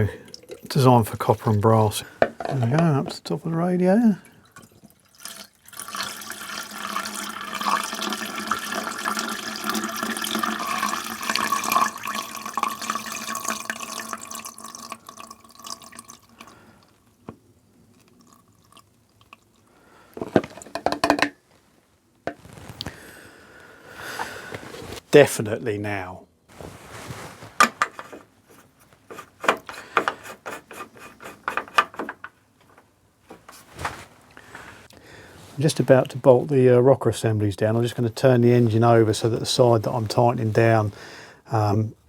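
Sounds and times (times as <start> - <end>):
water pouring into radiator: 0.0 - 1.9, 4.0 - 17.0.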